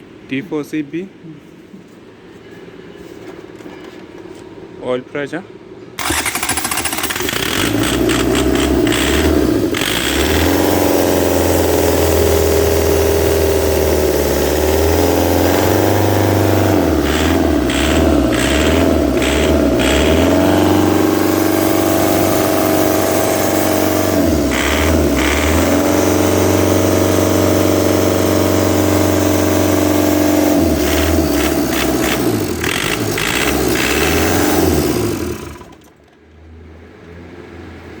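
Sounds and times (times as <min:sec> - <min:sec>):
diesel engine revving and idling: 0:06.0 - 0:35.9.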